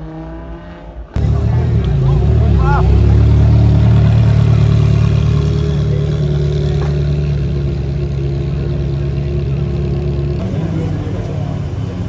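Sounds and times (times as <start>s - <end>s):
car engine running at low revs: 0.0s - 12.0s.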